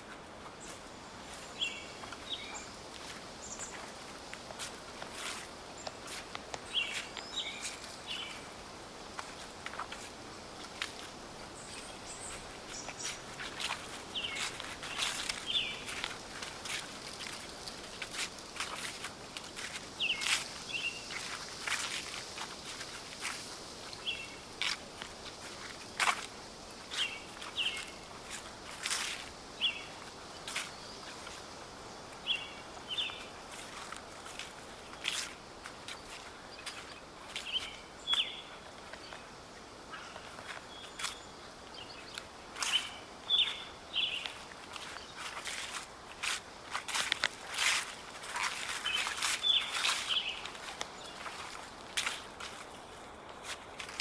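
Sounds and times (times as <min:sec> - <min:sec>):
footsteps through dry leaves: 0:00.0 - 0:54.0
steady outdoor hiss: 0:00.0 - 0:54.0
bird calls: 0:11.5 - 0:16.1, 0:34.9 - 0:45.3, 0:48.6 - 0:51.6.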